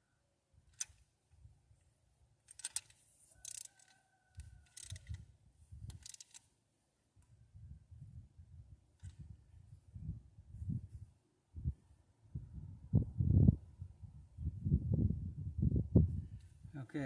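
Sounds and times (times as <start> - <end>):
hand ratchet clicking: 2.5 - 3.9, 4.7 - 5.2, 5.9 - 6.4.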